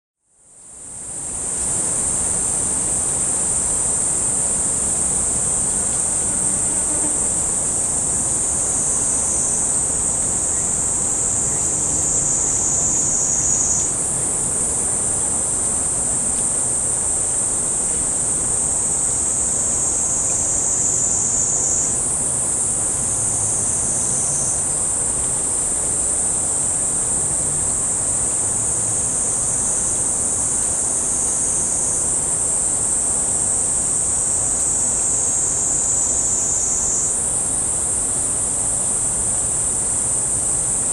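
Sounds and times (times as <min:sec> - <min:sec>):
insects shrilling: 0:02.1 - 0:14.0, 0:34.1 - 0:37.2.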